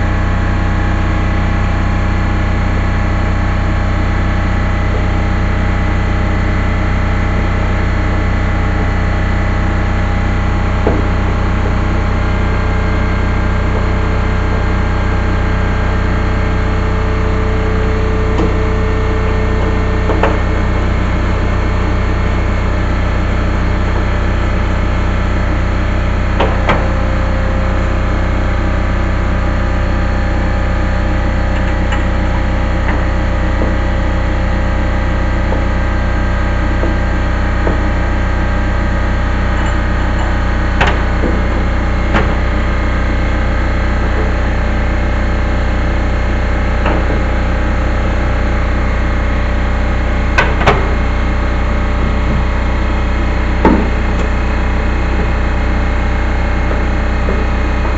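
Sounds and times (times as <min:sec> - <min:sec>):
steady mechanical hum: 0:00.0 - 0:57.9
sharp knocks: 0:53.6 - 0:54.3.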